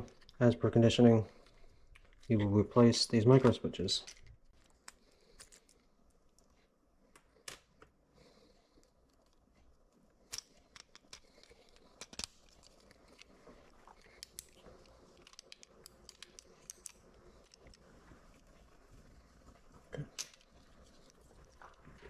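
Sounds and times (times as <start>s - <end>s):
plastic parts clicking and tapping: 14.0s - 17.8s.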